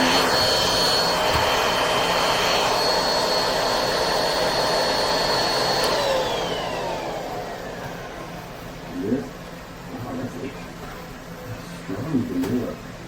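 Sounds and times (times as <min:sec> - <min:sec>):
vacuum motor whining: 0:00.0 - 0:09.3.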